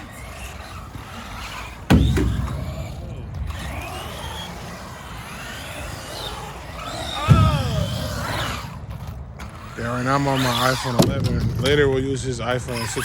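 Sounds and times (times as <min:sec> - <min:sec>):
electric motor whine: 0:00.0 - 0:11.0
toy truck hitting ramp: 0:01.9 - 0:02.9.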